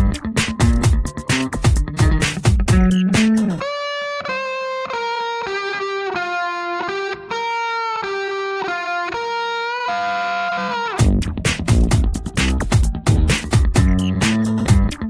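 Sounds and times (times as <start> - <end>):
bass and drums: 0.0 - 3.6, 11.0 - 15.0
clean electric guitar melody: 0.0 - 15.0.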